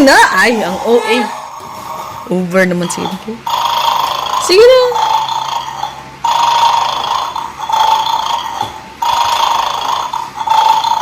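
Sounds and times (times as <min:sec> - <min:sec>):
toy electronic snoring: 0:03.1 - 0:11.0.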